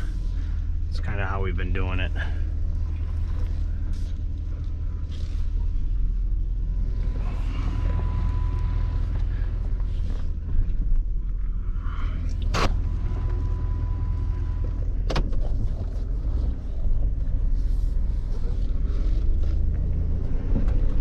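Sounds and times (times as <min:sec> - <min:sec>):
faint steady tone: 0:00.0 - 0:15.1
truck engine rumbling: 0:00.0 - 0:21.0.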